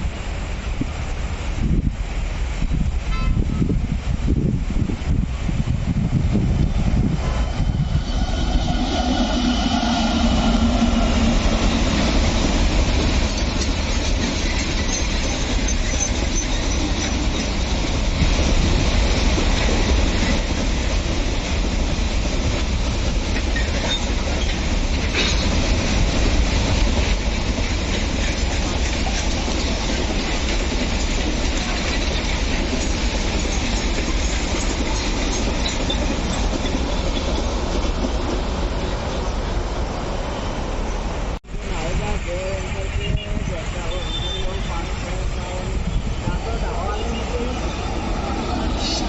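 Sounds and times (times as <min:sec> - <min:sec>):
train wheels clattering: 0:07.2 - 0:39.4.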